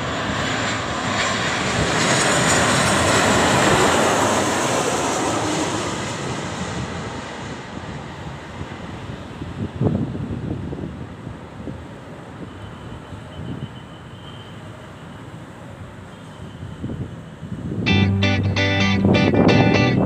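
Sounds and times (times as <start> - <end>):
jet airliner passing overhead: 0.0 - 9.8
high jet engine whine: 0.0 - 13.3.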